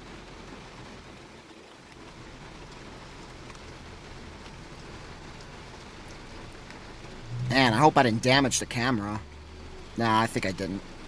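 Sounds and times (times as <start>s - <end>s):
heavy rain falling: 0.0s - 11.0s
ticks of raindrops: 0.0s - 11.0s.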